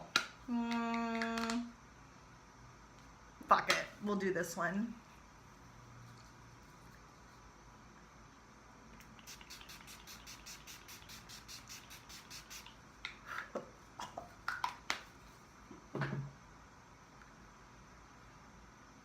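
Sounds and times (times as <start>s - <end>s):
spray bottle hissing sprays: 9.0s - 12.8s.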